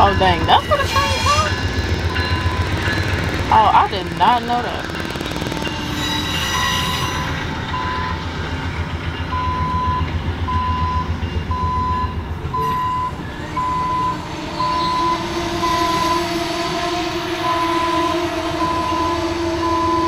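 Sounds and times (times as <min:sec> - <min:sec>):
passenger train rumbling past: 0:00.0 - 0:20.0
electronic beep: 0:09.4 - 0:16.0.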